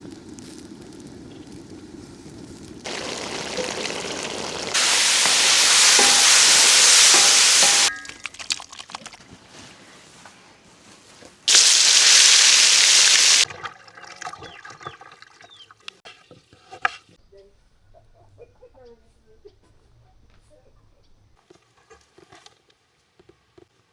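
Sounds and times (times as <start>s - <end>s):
food frying in a hot pan: 0.0s - 7.9s, 11.5s - 13.5s.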